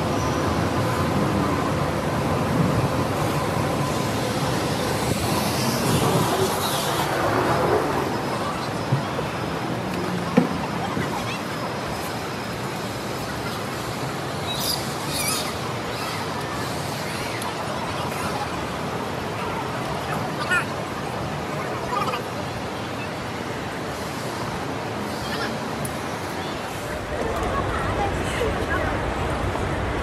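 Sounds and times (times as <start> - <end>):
chatter of crowd: 0.0 - 30.0.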